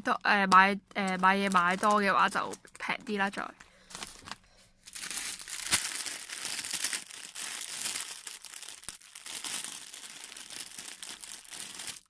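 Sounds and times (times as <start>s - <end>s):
packaging crinkling and rustling: 0.9s - 12.0s.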